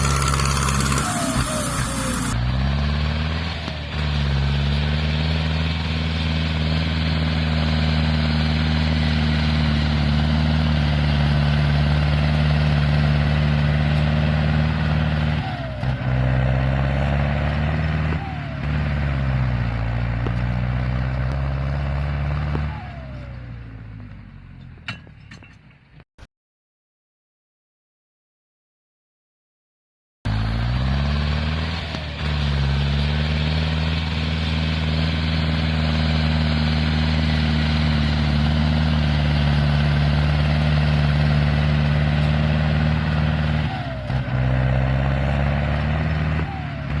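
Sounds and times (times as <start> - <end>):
tractor diesel engine running: 0.0 - 25.2, 30.3 - 47.0.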